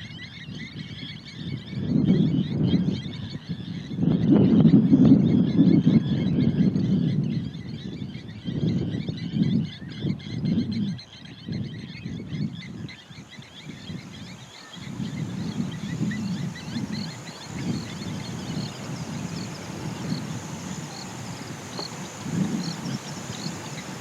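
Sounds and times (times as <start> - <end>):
small birds chirping: 5.4 - 24.0
low uneven rumble: 13.7 - 24.0.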